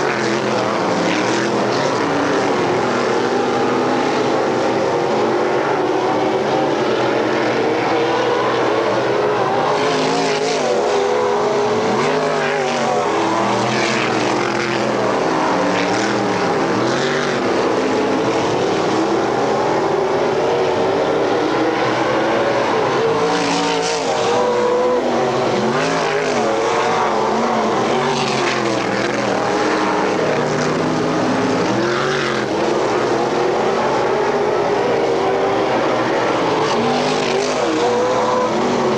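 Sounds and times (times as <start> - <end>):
race car engines: 0.0 - 38.9.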